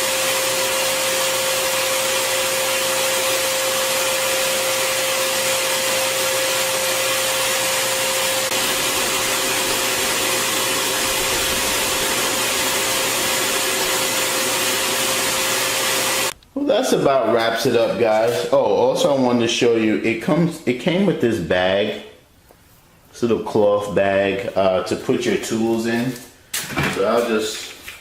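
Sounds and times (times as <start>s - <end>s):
vacuum motor whining: 0.0s - 16.4s.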